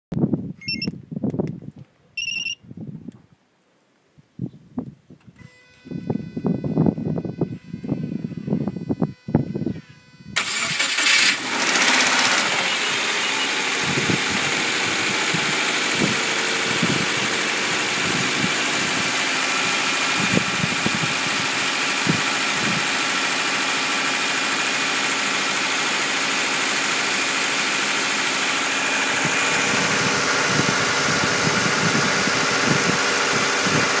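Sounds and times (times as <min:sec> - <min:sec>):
car engine starting and idling: 0:10.4 - 0:34.0.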